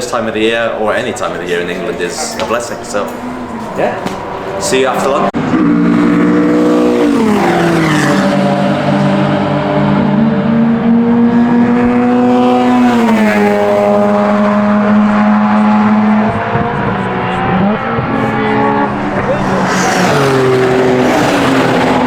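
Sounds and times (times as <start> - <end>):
rotary engine running hard: 5.3 - 22.0.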